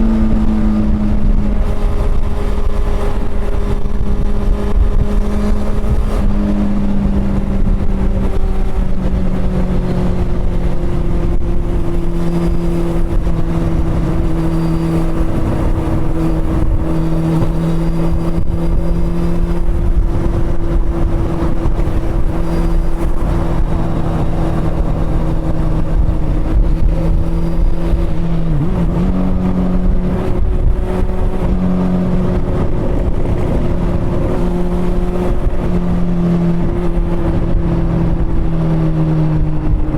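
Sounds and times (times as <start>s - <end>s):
motorcycle engine at speed: 0.0s - 39.9s
road rumble: 0.0s - 39.9s
wind: 0.0s - 39.9s.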